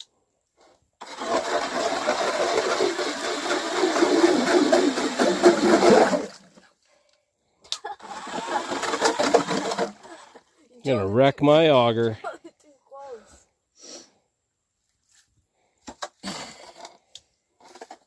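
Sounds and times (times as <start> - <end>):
electric ice auger grinding ice: 1.0 - 6.4, 8.0 - 10.4.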